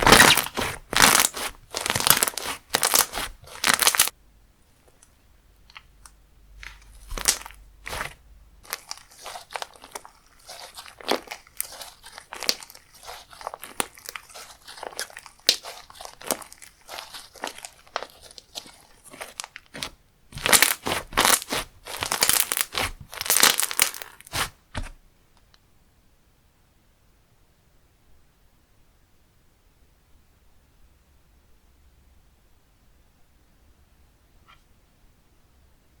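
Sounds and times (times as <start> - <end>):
slime squishing: 0.0 - 4.1, 5.7 - 25.0.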